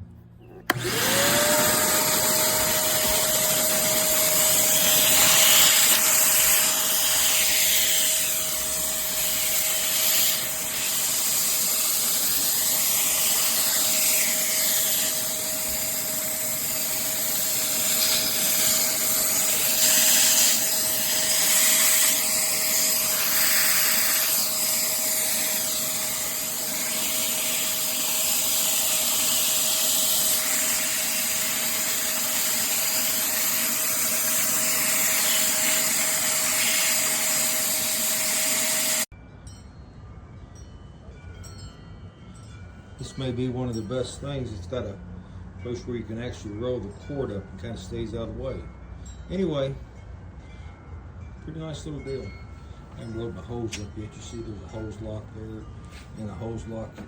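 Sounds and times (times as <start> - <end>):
shop vacuum running: 0.4 - 39.1.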